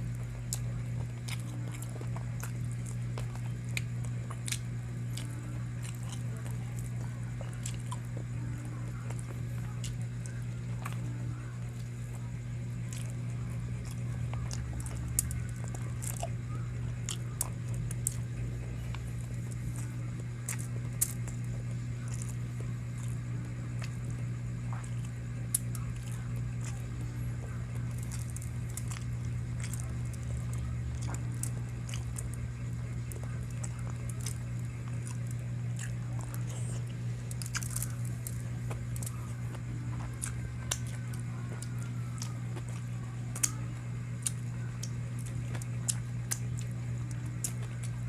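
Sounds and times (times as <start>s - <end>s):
chewing and biting food: 0.0s - 48.0s
steady low hum: 0.0s - 48.0s
sharp crunches: 33.1s - 41.6s.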